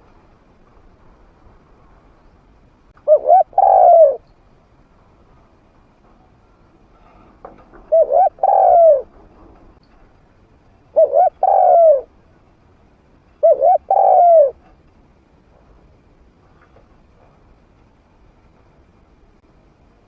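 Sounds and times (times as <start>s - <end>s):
dove cooing: 3.0s - 4.2s, 7.8s - 9.2s, 10.9s - 12.1s, 13.4s - 14.6s.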